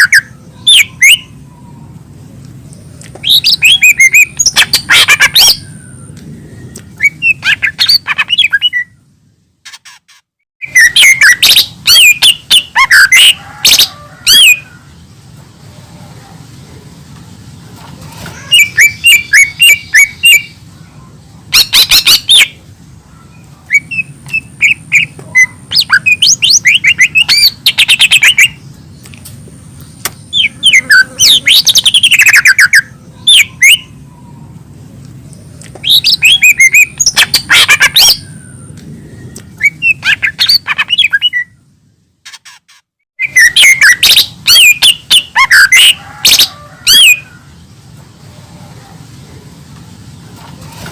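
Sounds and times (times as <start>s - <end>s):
bird chirps trills and whistles: 0.0s - 2.0s, 3.2s - 9.0s, 9.7s - 14.6s, 18.4s - 20.6s, 21.5s - 22.6s, 23.2s - 28.7s, 30.0s - 34.2s, 35.8s - 41.6s, 43.2s - 47.3s.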